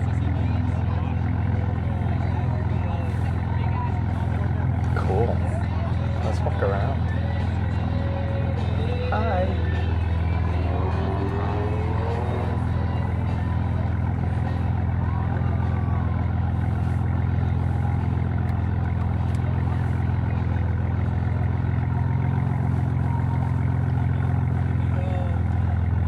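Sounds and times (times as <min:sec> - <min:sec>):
car engine running at low revs: 0:00.0 - 0:26.0.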